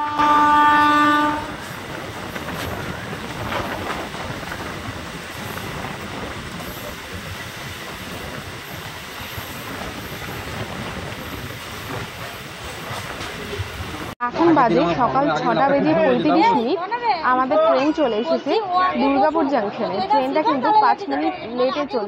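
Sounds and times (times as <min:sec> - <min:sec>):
electric train rumbling on rails: 0:00.0 - 0:15.2.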